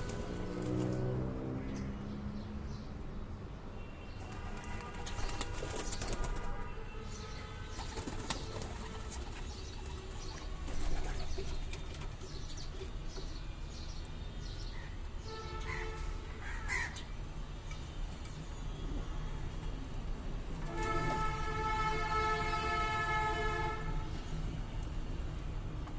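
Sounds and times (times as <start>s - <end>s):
pigeons flapping wings: 4.2s - 6.6s, 7.7s - 12.2s.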